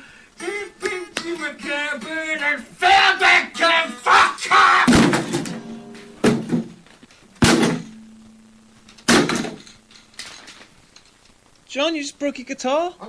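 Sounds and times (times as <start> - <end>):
guitar being struck: 3.0 - 10.3
guitar strings ringing: 5.0 - 10.5.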